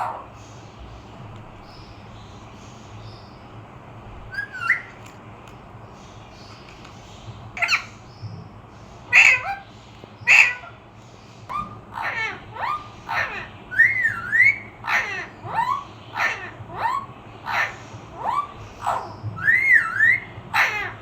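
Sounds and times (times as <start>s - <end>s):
parrot squawking: 0.0s - 0.5s, 4.3s - 5.1s, 7.6s - 8.1s, 9.0s - 21.0s.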